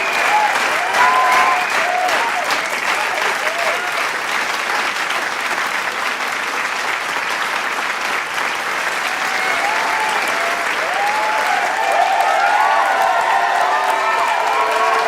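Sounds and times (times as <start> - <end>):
whoops and shouts: 0.0 - 2.4, 9.1 - 15.0
crowd applauding and cheering: 0.0 - 15.0.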